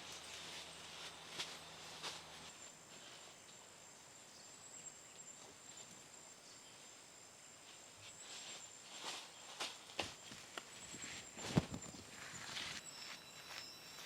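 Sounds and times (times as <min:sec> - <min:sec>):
high-pitched insect trill: 0:12.2 - 0:14.0.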